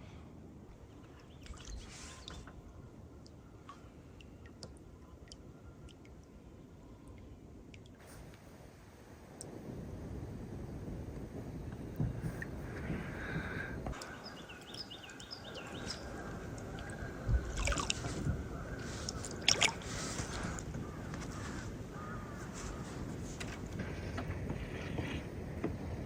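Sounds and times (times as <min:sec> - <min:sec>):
canoe paddle pulling through water: 0:00.9 - 0:02.6, 0:12.0 - 0:26.0
water dripping off paddle: 0:01.0 - 0:06.4, 0:13.9 - 0:21.2
sharp splashes: 0:01.2 - 0:02.5, 0:14.0 - 0:20.6.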